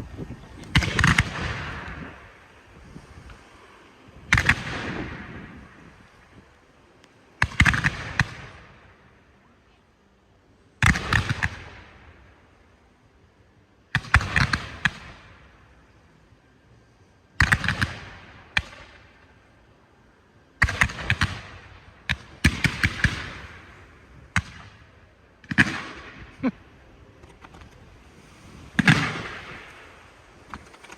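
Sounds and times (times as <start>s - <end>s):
fireworks popping and crackling: 0.0s - 3.4s, 4.2s - 6.1s, 20.6s - 26.6s, 28.6s - 30.9s.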